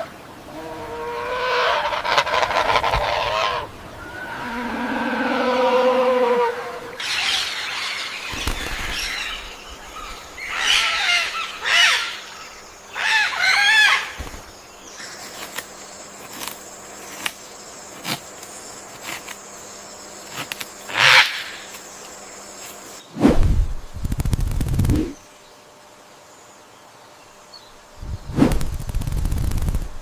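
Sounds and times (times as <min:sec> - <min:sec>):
birds calling: 0:00.0 - 0:23.2.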